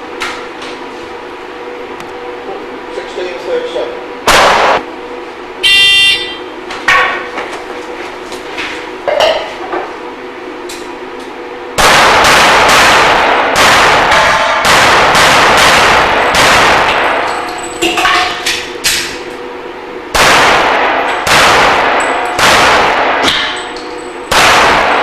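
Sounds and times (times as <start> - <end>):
pistol shots: 4.3 - 4.8, 11.8 - 17.4, 20.1 - 23.7, 24.3 - 25.0.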